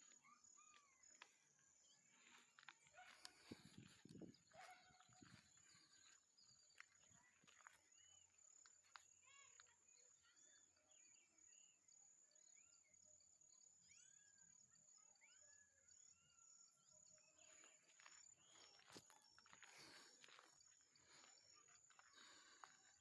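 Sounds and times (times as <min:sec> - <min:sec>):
birds chirping: 0:00.0 - 0:09.6, 0:17.2 - 0:23.0.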